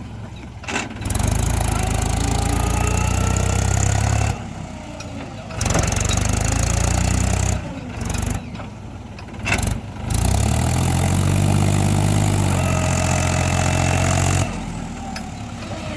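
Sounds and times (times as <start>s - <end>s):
tractor diesel engine running: 0.0s - 15.9s.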